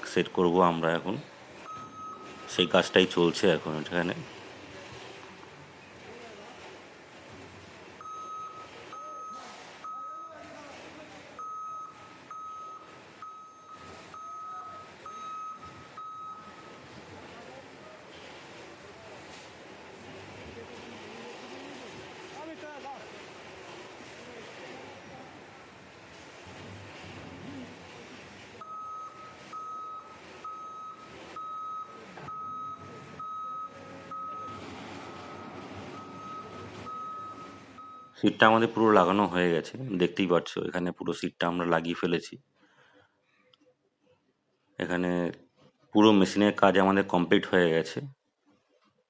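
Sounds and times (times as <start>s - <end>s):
wheel loader machine noise: 0.0s - 39.6s
reversing alarm beeping: 0.8s - 4.1s, 8.0s - 10.6s, 11.3s - 17.6s, 28.6s - 38.3s
engine running: 11.4s - 38.1s.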